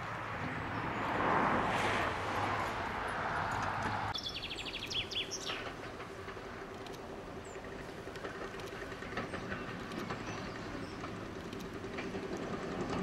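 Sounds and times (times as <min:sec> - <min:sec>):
distant train rumble: 0:00.0 - 0:13.0
birds chirping: 0:03.5 - 0:12.0.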